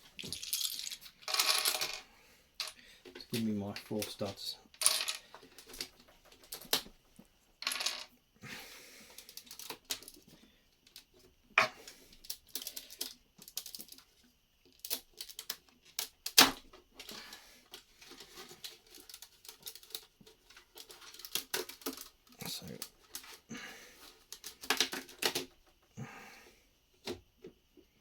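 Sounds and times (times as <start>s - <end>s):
plastic bricks clicking and clattering: 0.2s - 2.0s, 2.6s - 6.9s, 7.6s - 8.1s, 10.9s - 17.2s, 18.2s - 23.4s, 24.3s - 25.6s.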